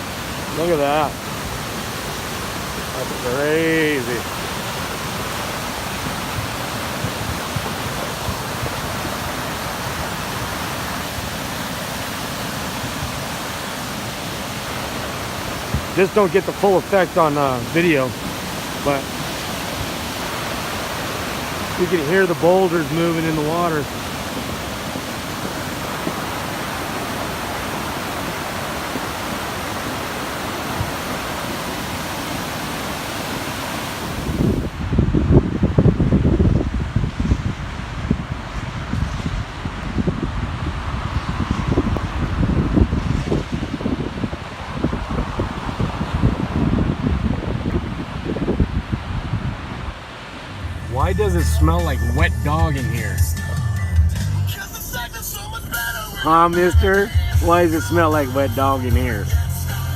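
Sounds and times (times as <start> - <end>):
boulders rolling in water: 0.0 - 34.8
wind buffeting microphone: 0.0 - 51.4
floodwater rushing down a stream: 0.0 - 53.6, 54.5 - 59.9.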